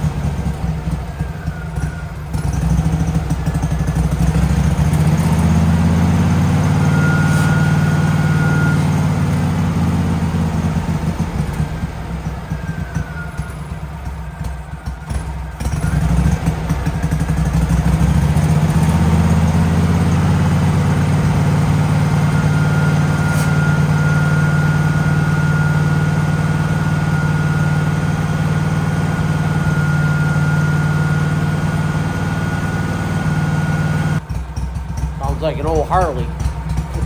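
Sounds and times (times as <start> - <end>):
generator gas engine running: 0.0 - 37.0
faint high whine: 6.6 - 10.3, 20.9 - 34.2.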